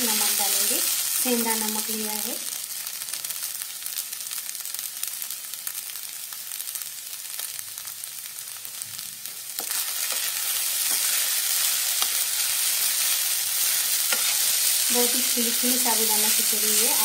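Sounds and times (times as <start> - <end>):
food sizzling in oil: 0.0 - 17.0
spatula stirring: 9.6 - 14.9.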